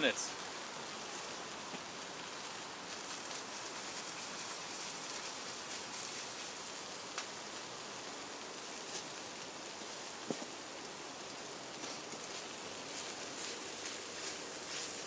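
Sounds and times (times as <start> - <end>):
rain falling on a surface: 0.0 - 15.0.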